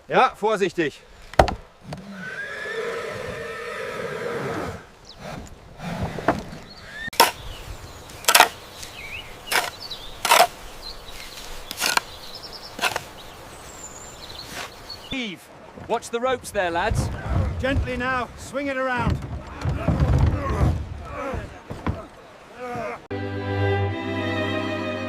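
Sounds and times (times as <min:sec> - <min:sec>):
sharp knocks: 0:01.4 - 0:01.7.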